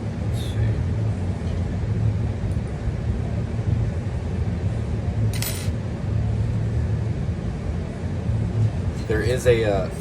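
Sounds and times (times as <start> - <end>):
steady low hum: 0.0 - 10.0
metallic clink of small parts: 5.3 - 5.8.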